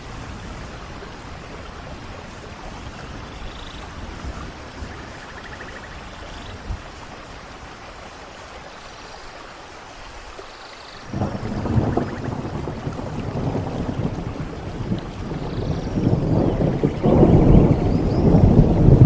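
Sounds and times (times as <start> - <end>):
rain falling: 0.0 - 19.0
deep rumble of thunder: 11.1 - 19.0.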